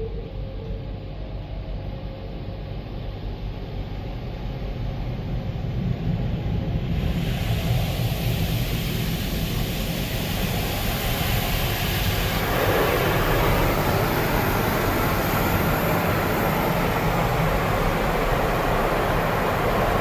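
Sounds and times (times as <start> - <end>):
high-pressure water jets spraying: 7.0 - 20.0.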